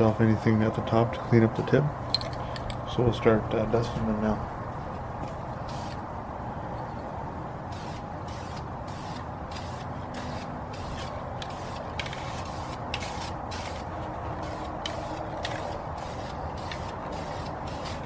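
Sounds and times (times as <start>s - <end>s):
aerosol can spraying bursts: 5.7s - 6.0s, 7.7s - 18.0s.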